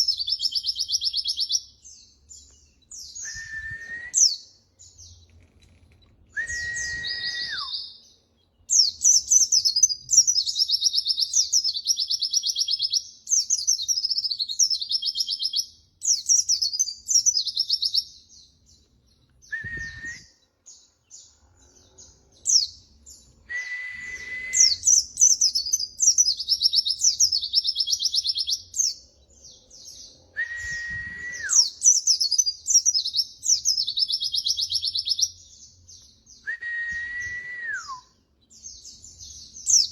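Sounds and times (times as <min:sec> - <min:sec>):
bird whistled note: 0:06.4 - 0:07.8, 0:23.5 - 0:25.0.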